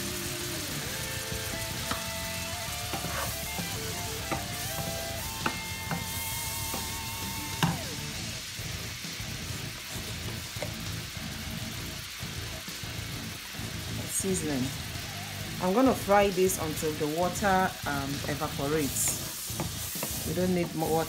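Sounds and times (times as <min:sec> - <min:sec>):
background music: 0:00.0 - 0:09.4
shrimp sizzling in oil: 0:00.0 - 0:21.0
wooden spatula knocking pan: 0:02.9 - 0:07.0, 0:18.2 - 0:20.9.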